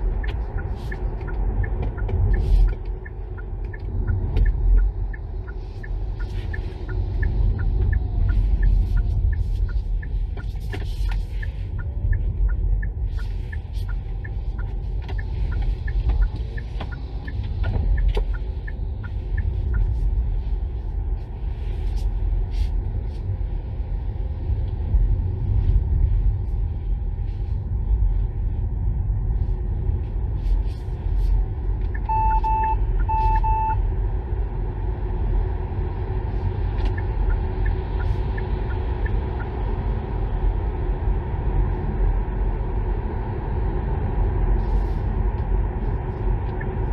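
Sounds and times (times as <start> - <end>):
road and tyre rumble: 0.0 - 46.9
short electronic beeps: 31.9 - 33.8.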